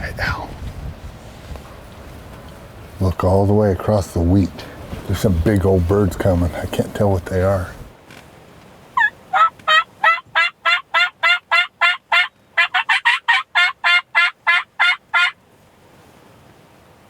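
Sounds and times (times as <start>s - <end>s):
turkey call hen yelps: 9.0s - 15.4s.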